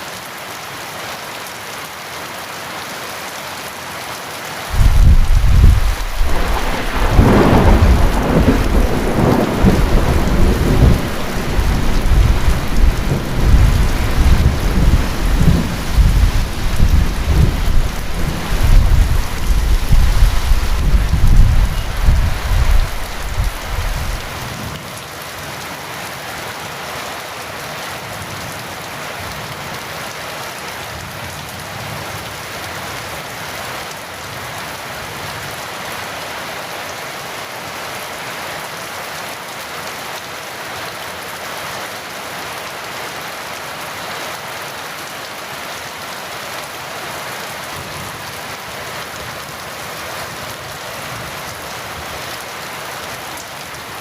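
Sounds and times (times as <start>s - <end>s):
heavy rain falling: 0.0s - 54.0s
thunder cracking and rumbling: 4.7s - 24.3s.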